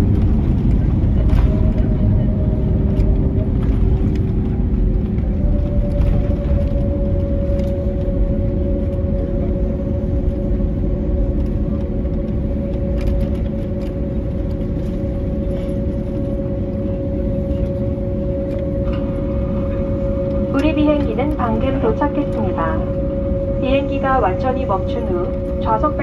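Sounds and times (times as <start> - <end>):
aircraft cabin engine rumble: 0.0 - 26.0
steady hum: 0.0 - 26.0.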